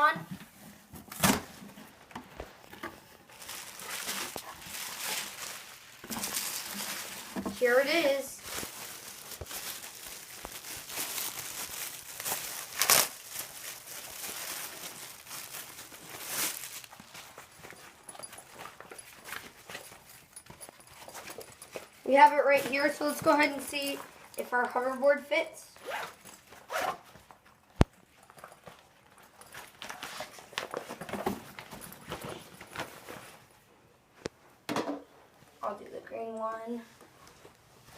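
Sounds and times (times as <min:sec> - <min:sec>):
knocking and rustling of bag: 0:00.4 - 0:24.1
plastic packaging crinkling: 0:02.4 - 0:20.4.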